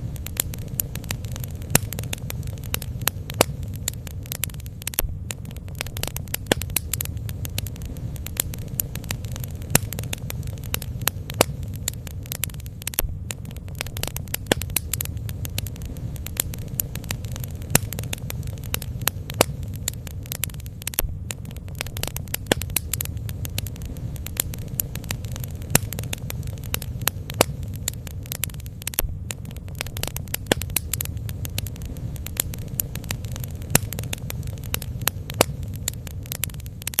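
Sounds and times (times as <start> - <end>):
bonfire crackling and popping: 0.0 - 37.0.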